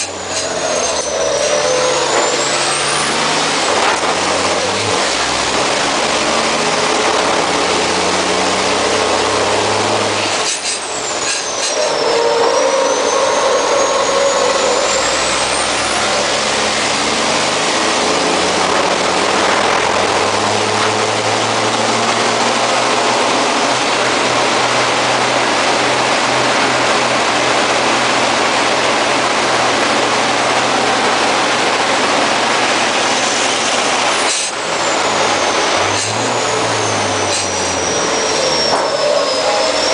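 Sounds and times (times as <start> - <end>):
dense rushing noise: 0.0 - 39.9
diesel engine running hard: 0.0 - 39.9
high whistle: 0.2 - 3.2, 11.1 - 15.9, 35.0 - 39.9.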